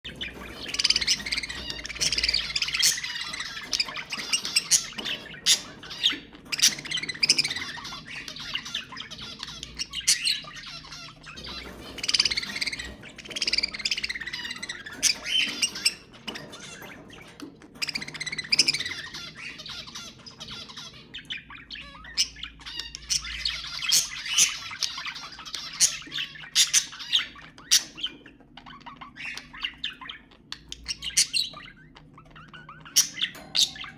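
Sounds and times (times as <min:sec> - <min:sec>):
budgerigars chattering: 0:00.0 - 0:33.9.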